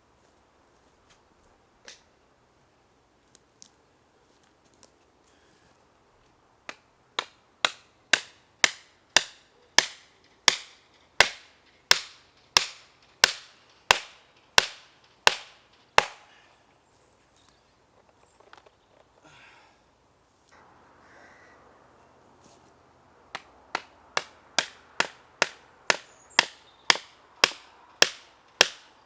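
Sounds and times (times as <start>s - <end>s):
hand tool striking wood: 6.7s - 16.3s, 23.3s - 28.9s.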